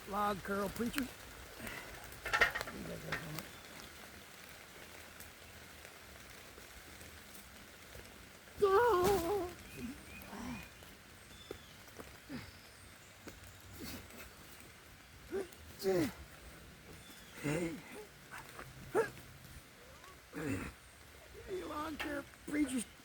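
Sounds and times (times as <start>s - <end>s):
steady rain: 0.0s - 23.0s
man straining vocal effort: 20.3s - 20.8s.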